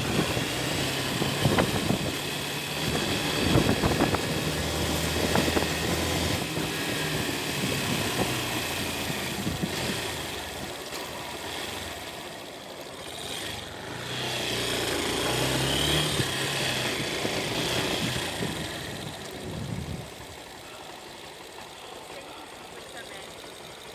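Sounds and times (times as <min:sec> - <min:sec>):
wind noise: 0:00.0 - 0:06.4, 0:17.0 - 0:20.3
motorcycle engine running: 0:00.0 - 0:23.9.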